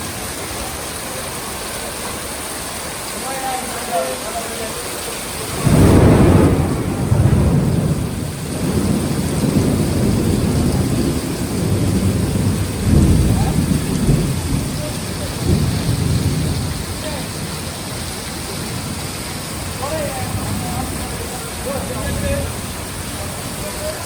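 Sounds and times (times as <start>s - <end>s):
heavy rain falling: 0.0s - 24.0s
thunder rumbling: 5.4s - 24.0s.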